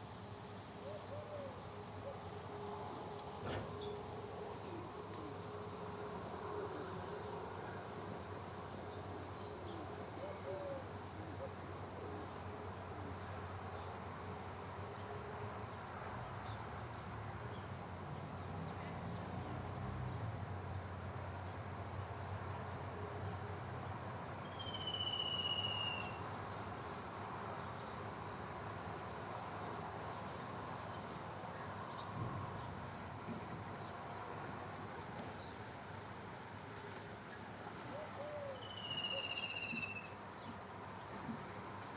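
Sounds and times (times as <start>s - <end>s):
steady background hiss: 0.0s - 41.9s
songbird call with falling notes: 24.5s - 26.2s, 38.2s - 40.2s.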